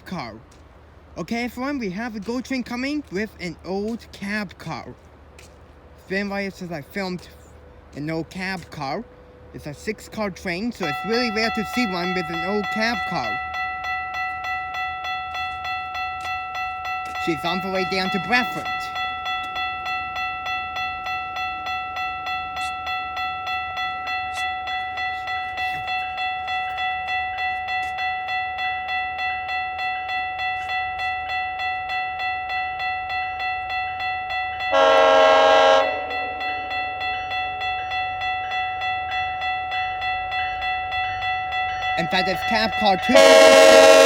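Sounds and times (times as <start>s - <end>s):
level-crossing warning bell ringing: 1.2s - 44.0s
train horn blast: 34.7s - 36.5s, 43.0s - 44.0s.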